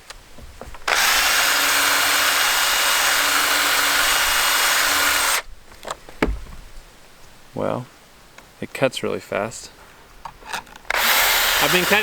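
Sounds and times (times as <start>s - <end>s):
short knocks: 0.0s - 1.3s, 5.7s - 7.0s
drill filing chainsaw chain: 0.9s - 5.4s, 10.9s - 12.0s.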